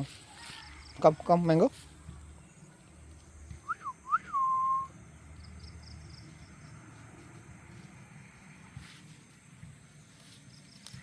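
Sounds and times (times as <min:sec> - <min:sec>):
person whistling: 0:03.6 - 0:04.9.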